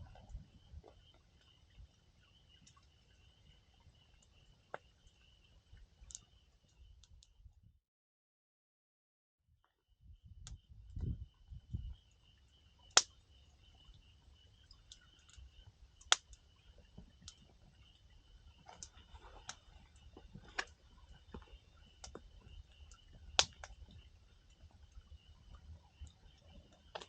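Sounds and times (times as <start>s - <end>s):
sharp pops from firewood: 12.9s - 13.2s, 16.0s - 16.4s, 23.3s - 23.8s
wood fire crackling: 14.7s - 27.0s.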